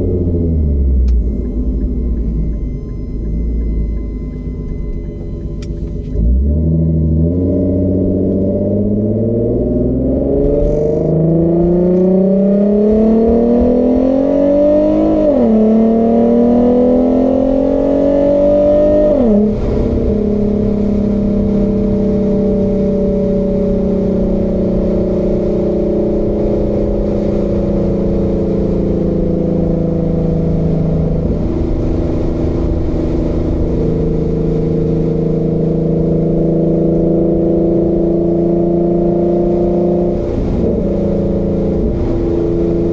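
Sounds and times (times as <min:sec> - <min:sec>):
car exhaust accelerating through upshifts: 0:00.0 - 0:42.9.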